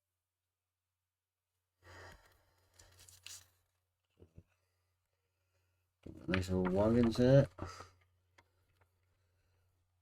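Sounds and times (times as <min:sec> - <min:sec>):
soft rustle: 0:02.2 - 0:03.7.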